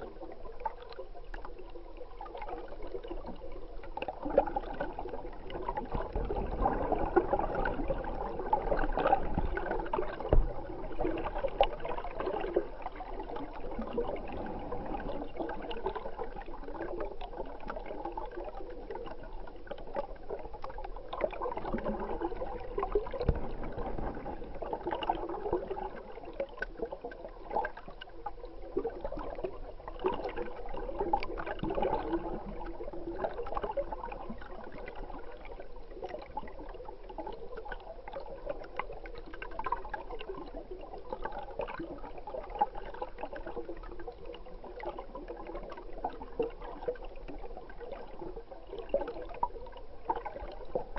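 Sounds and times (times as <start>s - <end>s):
muffled stream water gurgling: 0.0s - 50.9s
low knocks: 23.2s - 24.6s.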